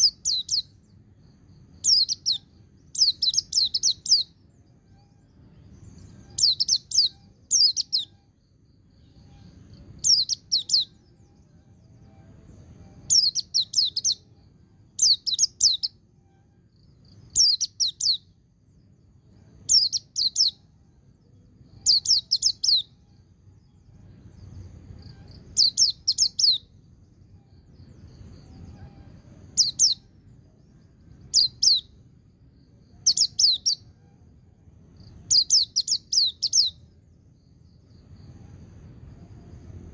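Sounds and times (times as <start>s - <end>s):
bird twittering: 0.0s - 0.8s, 1.8s - 8.4s, 9.0s - 11.5s, 13.0s - 14.3s, 15.0s - 16.0s, 17.3s - 18.4s, 19.6s - 20.7s, 21.7s - 23.2s, 25.0s - 26.7s, 28.2s - 30.1s, 31.2s - 32.0s, 33.0s - 34.0s, 35.0s - 36.9s
faint low rumble: 0.0s - 39.9s.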